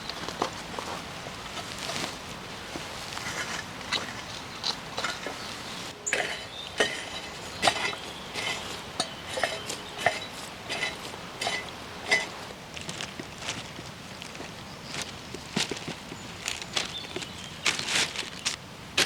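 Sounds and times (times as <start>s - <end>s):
light metallic clinks with ringing: 6.1s - 12.4s.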